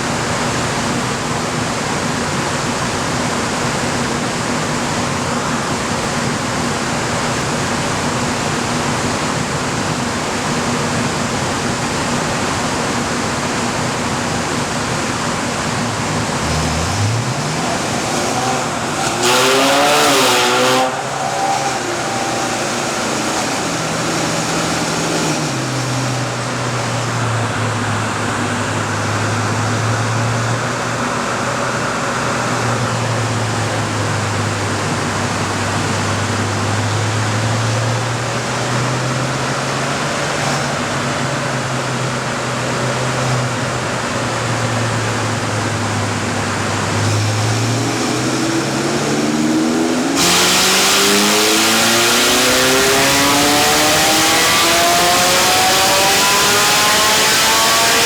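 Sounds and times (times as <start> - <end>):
loud rush of noise: 0.1 - 28.8, 43.8 - 58.0
sports car engine revving: 2.6 - 58.0.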